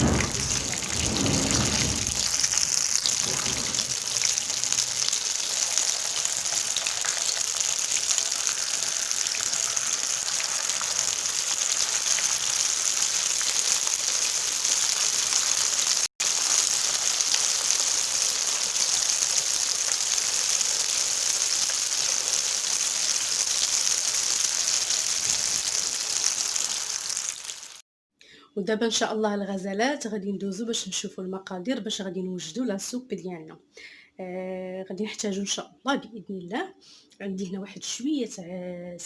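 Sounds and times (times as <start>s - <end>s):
spring rolls sizzling in oil: 0.0s - 27.8s.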